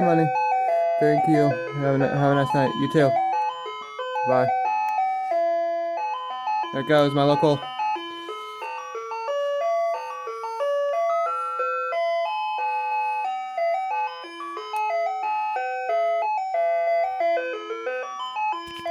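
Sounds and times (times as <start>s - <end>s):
ice cream truck jingle: 0.0s - 18.9s.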